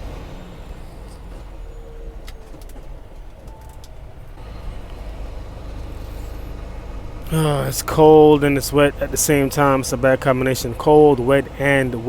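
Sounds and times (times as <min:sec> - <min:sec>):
truck idling: 0:00.0 - 0:12.0
faint clicks: 0:02.2 - 0:05.0.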